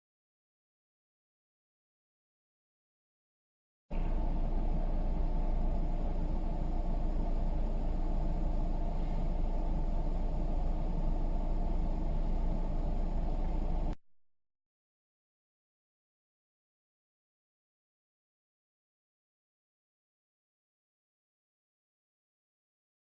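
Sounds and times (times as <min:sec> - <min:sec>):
road noise: 0:03.9 - 0:14.0
vehicle engine rumble: 0:03.9 - 0:14.0.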